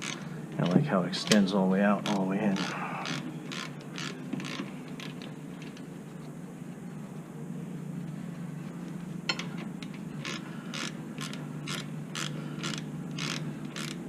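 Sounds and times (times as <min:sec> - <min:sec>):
hand ratchet ratcheting: 0:00.0 - 0:01.4, 0:02.0 - 0:05.3, 0:10.2 - 0:14.0.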